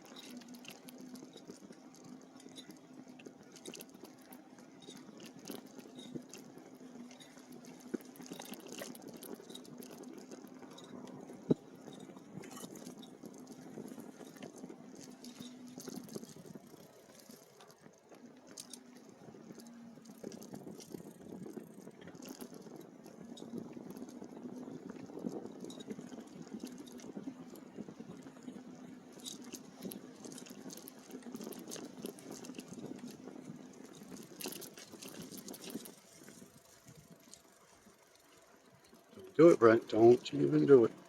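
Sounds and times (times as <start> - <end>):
small ticks: 0.0 - 41.0
tyres crackling over dirt: 0.0 - 41.0.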